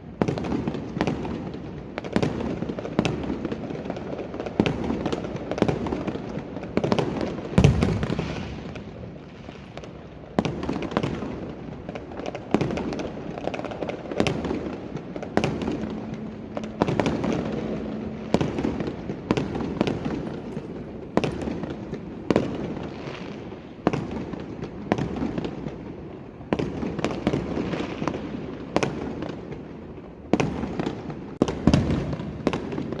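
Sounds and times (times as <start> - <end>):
fireworks sharp bangs: 0.0 - 33.0
distant explosions rumbling: 6.9 - 11.8, 12.5 - 29.2, 30.3 - 33.0.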